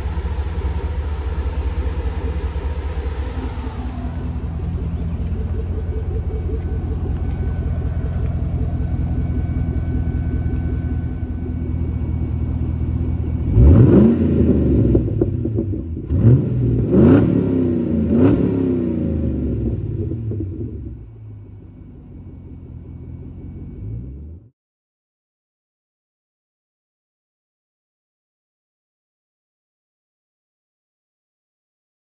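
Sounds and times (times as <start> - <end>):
car engine idling and revving: 0.0 - 24.5.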